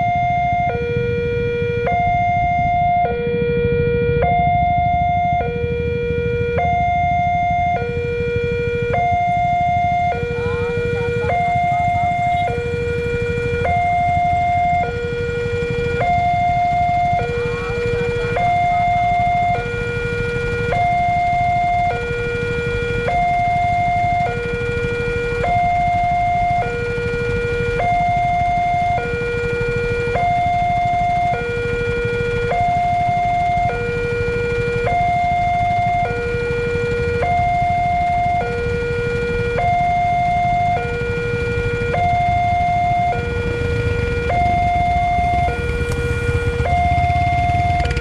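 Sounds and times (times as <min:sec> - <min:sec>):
two-tone level crossing alarm: 0:00.0 - 0:48.0
steady low rumble: 0:29.7 - 0:48.0.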